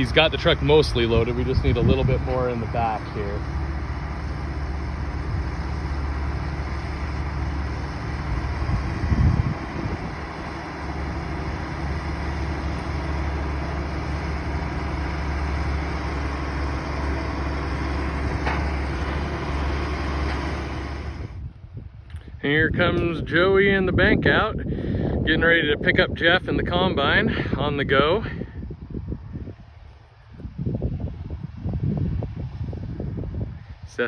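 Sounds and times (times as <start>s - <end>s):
heavy diesel engine running: 0.0s - 21.5s.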